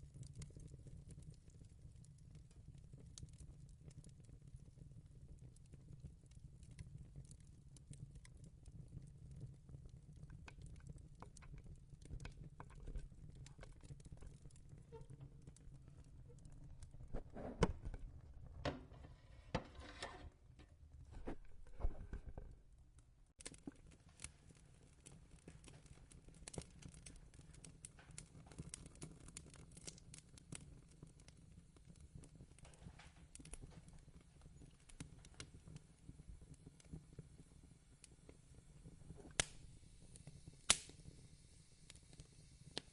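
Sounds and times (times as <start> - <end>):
wood fire crackling: 0.0 - 42.9
knocks and rustles: 17.1 - 22.6.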